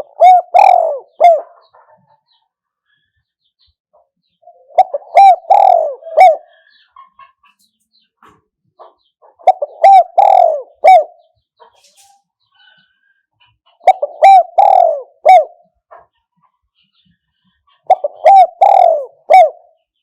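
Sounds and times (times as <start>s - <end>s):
dove cooing: 0.0s - 2.4s, 4.4s - 6.9s, 9.3s - 11.3s, 13.8s - 15.8s, 17.7s - 20.0s.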